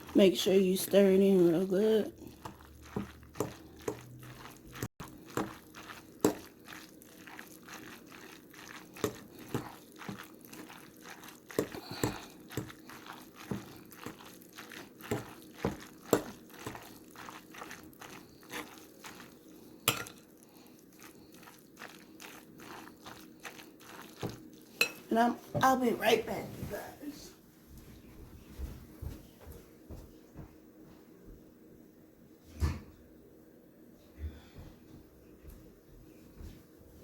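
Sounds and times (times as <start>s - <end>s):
spaghetti stirred in a bowl: 0.0s - 26.8s.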